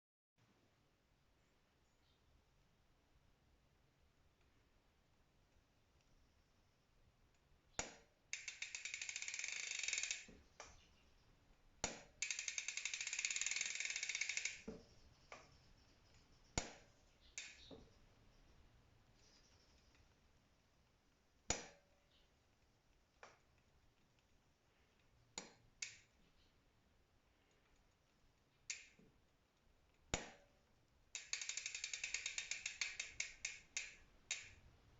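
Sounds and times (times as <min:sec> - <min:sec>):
bicycle freehub clicks: 0:07.8 - 0:10.8, 0:11.8 - 0:15.5, 0:16.6 - 0:17.8, 0:25.4 - 0:26.2, 0:28.6 - 0:29.1, 0:31.1 - 0:34.8
rapid ratchet ticking: 0:08.3 - 0:10.4, 0:11.8 - 0:14.7, 0:17.4 - 0:17.7, 0:31.1 - 0:34.7.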